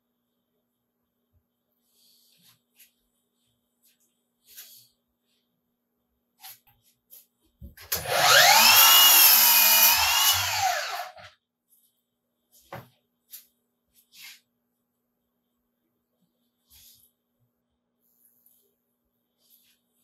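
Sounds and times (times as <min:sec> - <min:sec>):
power saw cutting wood: 0:07.9 - 0:11.3.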